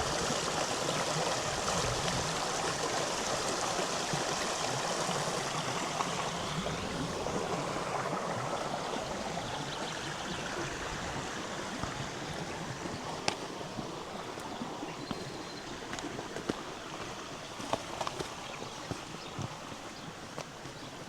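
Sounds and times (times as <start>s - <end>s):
river water flowing over stones: 0.0s - 21.0s.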